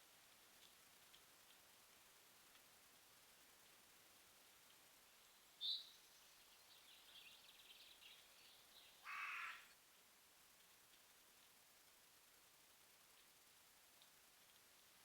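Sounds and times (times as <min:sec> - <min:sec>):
harsh caw-like bird call: 0:09.0 - 0:09.7.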